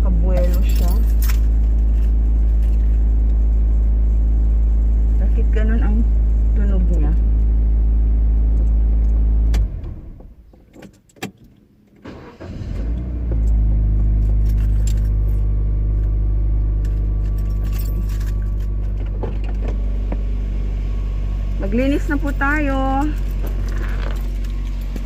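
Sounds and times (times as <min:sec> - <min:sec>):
car engine idling: 0:00.0 - 0:10.4, 0:13.3 - 0:25.0
jingles: 0:00.3 - 0:03.0, 0:14.2 - 0:15.5, 0:16.8 - 0:19.0, 0:22.8 - 0:25.0.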